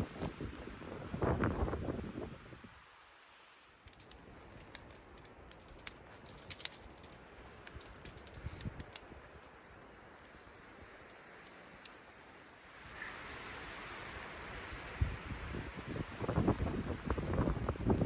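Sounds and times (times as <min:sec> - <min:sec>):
faint steady hiss: 0:00.0 - 0:18.0
light clicks and ticks: 0:03.9 - 0:10.4, 0:11.0 - 0:12.1.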